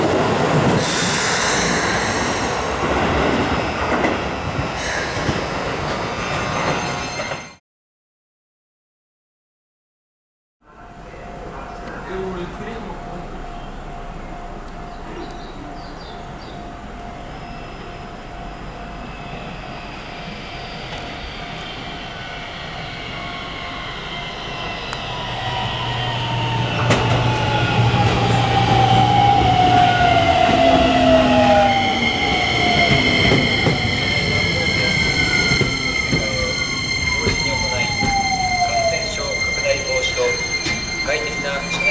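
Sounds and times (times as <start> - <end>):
steady high tones: 11.0 - 41.9.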